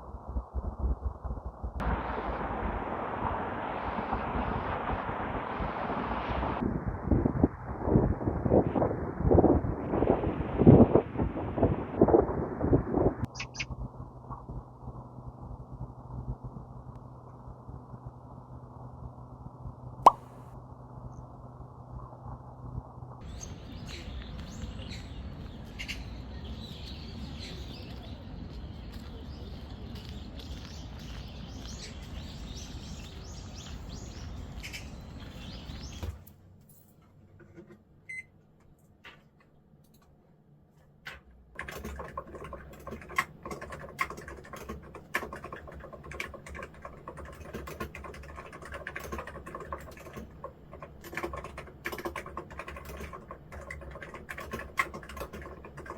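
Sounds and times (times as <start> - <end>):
keyboard typing clicks: 41.6 - 55.9.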